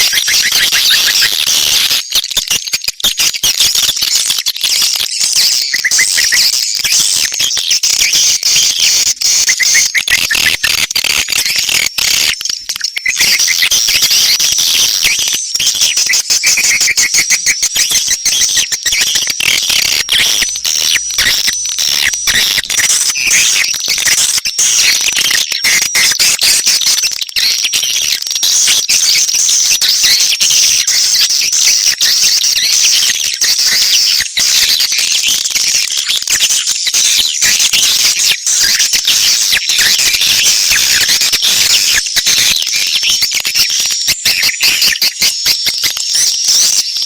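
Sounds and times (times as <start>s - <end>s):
swiftlet chirps and twitters: 0.0s - 28.2s.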